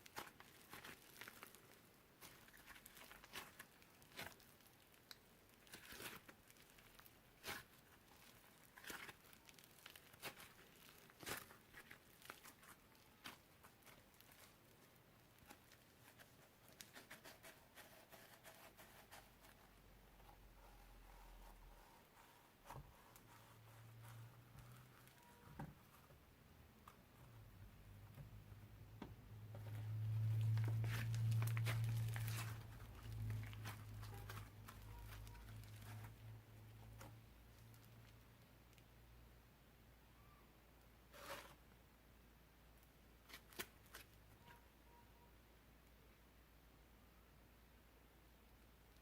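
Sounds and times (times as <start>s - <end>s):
slime clicking and crackling: 0.0s - 18.7s, 29.7s - 38.2s.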